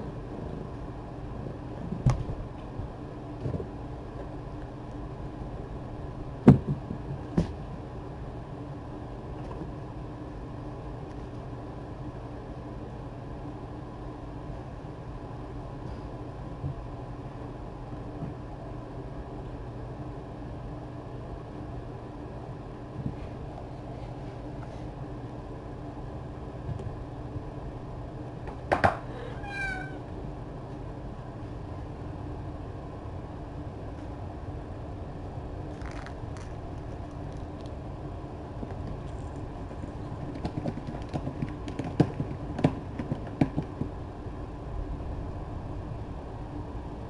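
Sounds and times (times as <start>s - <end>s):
steady low hum: 0.0s - 47.0s
cat meowing: 29.2s - 30.1s.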